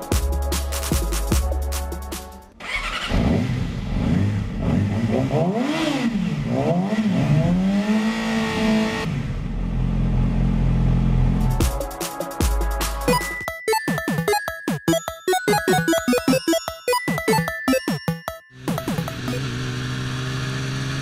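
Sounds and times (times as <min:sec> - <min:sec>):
electronic music: 0:00.0 - 0:02.5, 0:11.4 - 0:19.5
motorcycle engine revving: 0:02.6 - 0:09.8, 0:18.6 - 0:21.0.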